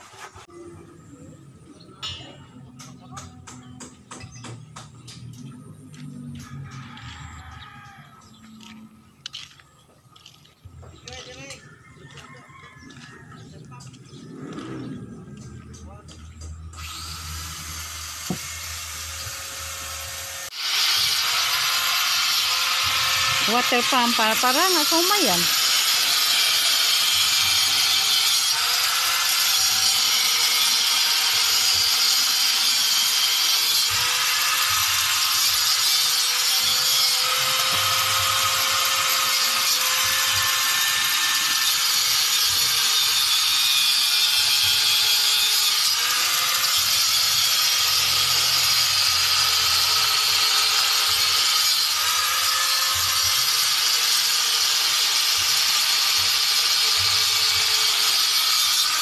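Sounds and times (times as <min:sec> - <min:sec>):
power tool whirring: 0:16.6 - 0:59.0.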